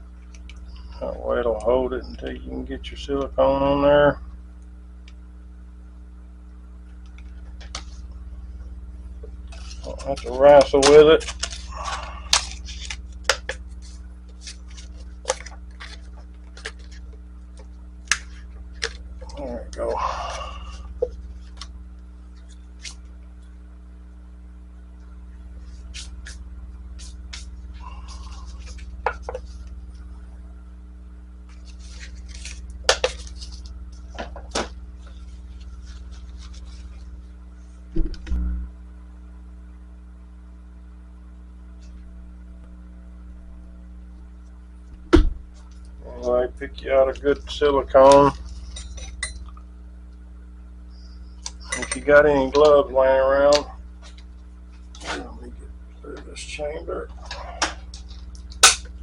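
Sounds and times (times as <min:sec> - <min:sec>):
steady low hum: 0:00.0 - 0:59.0
low thump: 0:37.9 - 0:38.6, 0:45.1 - 0:45.4.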